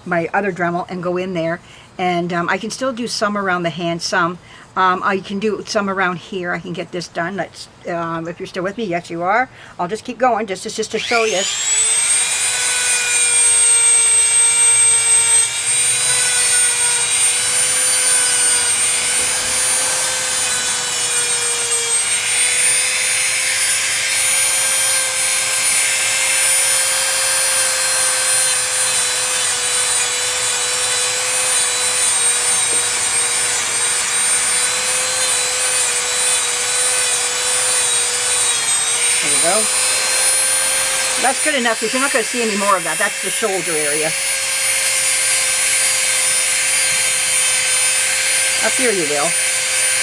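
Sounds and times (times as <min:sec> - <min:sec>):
rotary tool grinding with high whine: 0:10.9 - 0:50.0.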